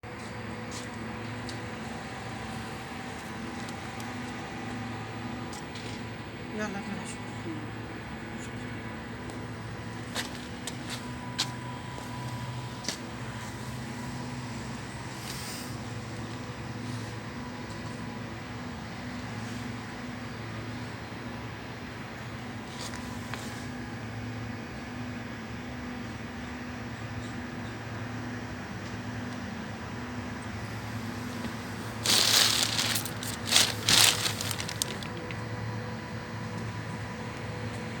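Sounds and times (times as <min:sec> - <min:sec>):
screw compressor humming: 0:31.2 - 0:35.2
loud rustling crackling: 0:31.7 - 0:35.2.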